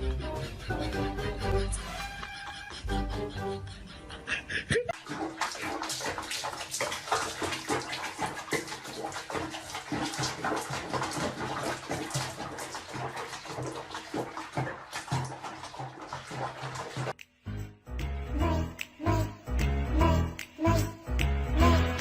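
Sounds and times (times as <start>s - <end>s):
water splashing and sloshing: 4.7s - 17.2s.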